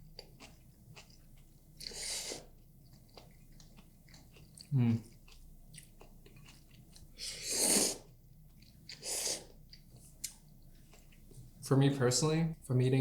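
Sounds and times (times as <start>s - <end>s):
slurping noodles: 7.2s - 8.1s, 8.9s - 9.5s.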